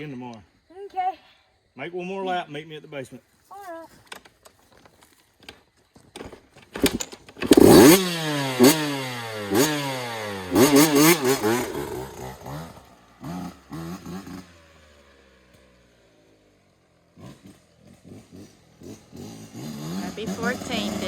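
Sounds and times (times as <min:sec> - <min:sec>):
dirt bike engine revving: 0:06.8 - 0:21.0.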